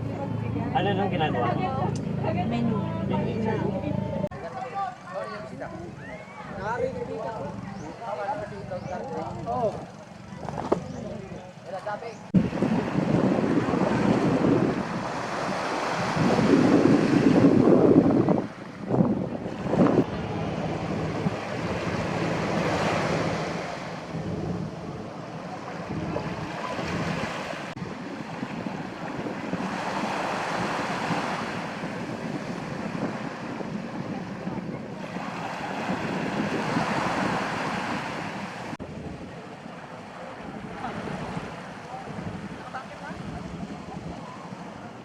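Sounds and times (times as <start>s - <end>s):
wind on microphone: 0.0s - 45.0s
sea waves washing in: 12.3s - 45.0s.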